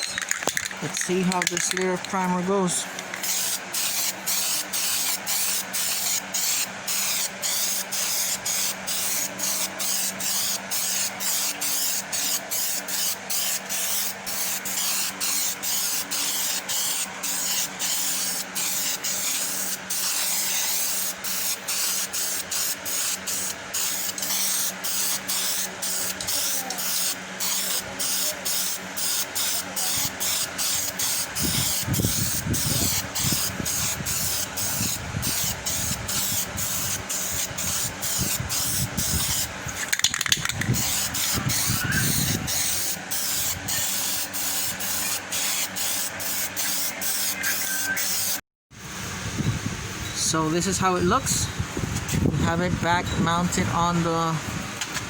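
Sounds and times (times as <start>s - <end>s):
spray gun hissing: 3.2s - 39.5s, 40.8s - 48.4s.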